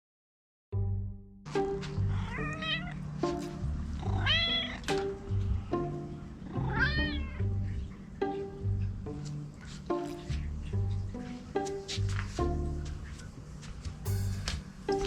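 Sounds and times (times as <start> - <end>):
light plucked background music: 0.7 - 15.0
cat meowing: 2.1 - 3.0, 4.0 - 4.9, 6.6 - 7.5.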